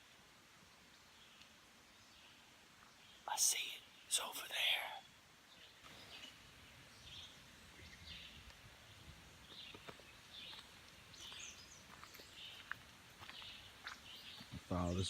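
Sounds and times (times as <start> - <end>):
soft steps on trail: 5.5 - 15.0.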